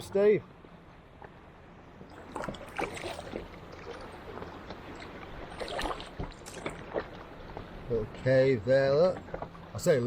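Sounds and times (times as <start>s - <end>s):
kayak paddle splashing: 2.0s - 7.9s
water running off paddle: 2.1s - 7.9s.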